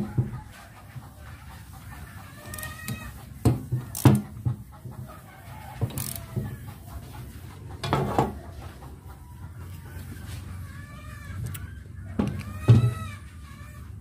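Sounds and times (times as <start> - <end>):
chicken clucking: 0.0 - 14.0
sharp knocks and clanks: 2.9 - 5.0, 7.8 - 8.4.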